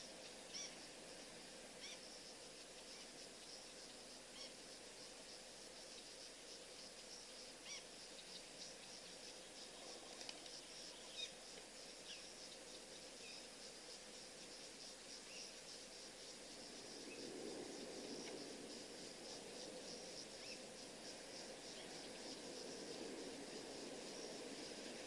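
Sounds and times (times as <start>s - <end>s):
insect chorus chirping: 0.0s - 25.0s
faint bird chirps: 0.2s - 0.8s, 1.8s - 2.1s, 2.9s - 4.6s, 7.0s - 9.6s, 10.4s - 11.4s.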